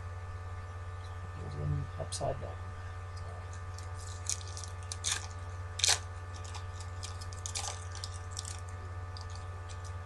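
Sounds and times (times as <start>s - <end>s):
low mains hum: 0.0s - 10.0s
foil wrappers crinkling: 3.5s - 10.0s.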